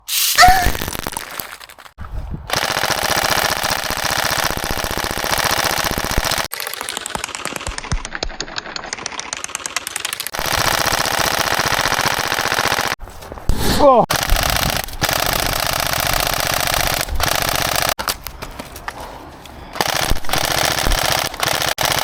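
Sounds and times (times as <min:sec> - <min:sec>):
airsoft rifle full-auto fire: 0:02.5 - 0:07.8, 0:10.4 - 0:13.0, 0:14.1 - 0:18.0, 0:19.8 - 0:22.0.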